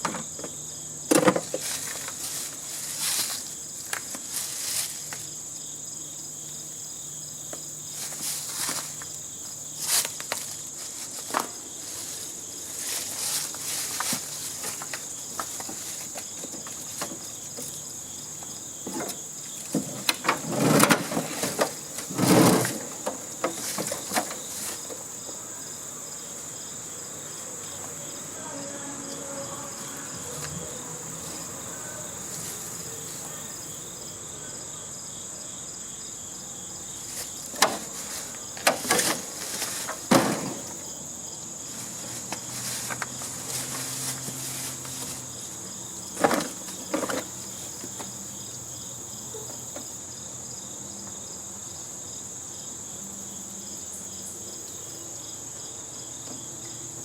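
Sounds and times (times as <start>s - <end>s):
insects shrilling: 0.6s - 50.1s
sharp knocks: 40.1s - 40.8s.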